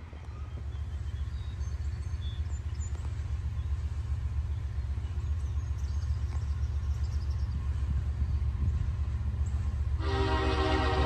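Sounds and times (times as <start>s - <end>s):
distant freight train rumble: 0.0s - 11.0s.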